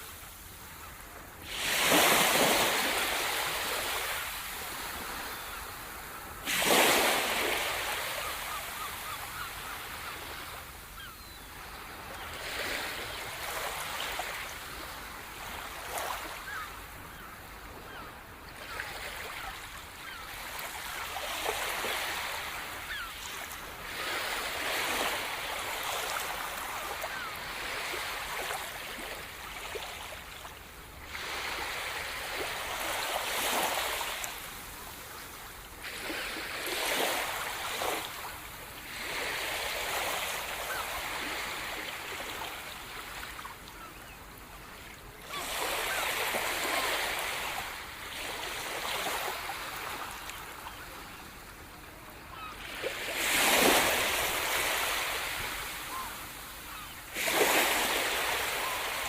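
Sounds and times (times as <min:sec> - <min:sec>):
rushing water: 0:55.3 - 0:59.0.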